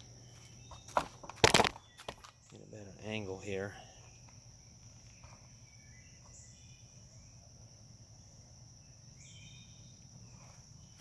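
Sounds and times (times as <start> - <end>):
insect chirring: 0.0 - 11.0
faint chirps: 1.8 - 11.0.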